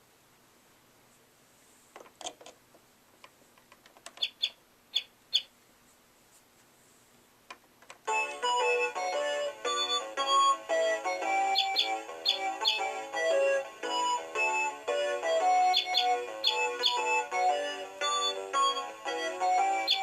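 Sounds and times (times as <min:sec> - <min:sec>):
toy electronic chirps: 0:04.2 - 0:05.5, 0:08.1 - 0:20.0.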